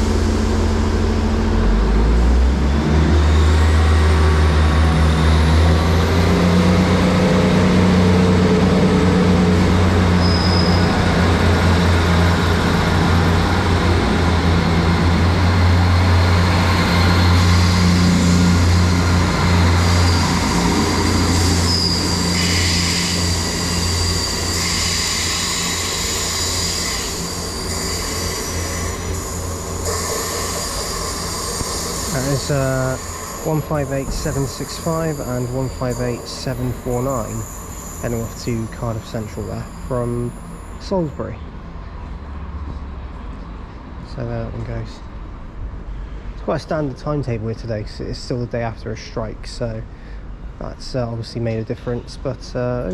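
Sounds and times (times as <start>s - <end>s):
diesel train engines droning: 0.0s - 52.9s
wheel squeals: 10.1s - 11.8s, 15.9s - 41.0s.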